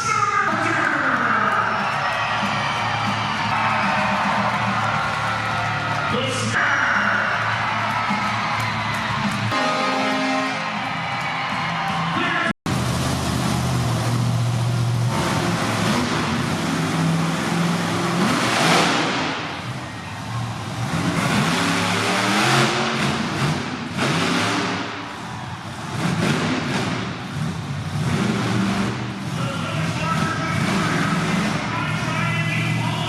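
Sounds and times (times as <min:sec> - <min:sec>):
truck engine revving hard: 0:09.2 - 0:10.9, 0:12.7 - 0:33.0.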